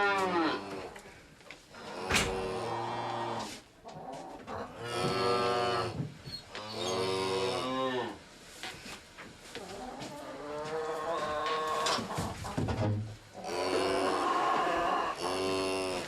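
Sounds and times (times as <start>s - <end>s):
cattle mooing: 13.5s - 16.0s.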